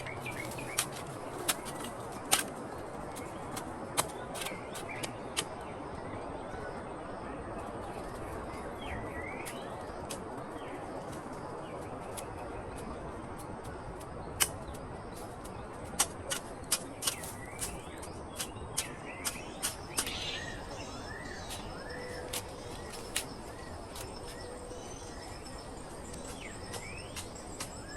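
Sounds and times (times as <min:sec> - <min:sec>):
birds chirping: 0:00.0 - 0:02.3, 0:17.0 - 0:27.9
sharp clicks or snaps: 0:18.4 - 0:20.3.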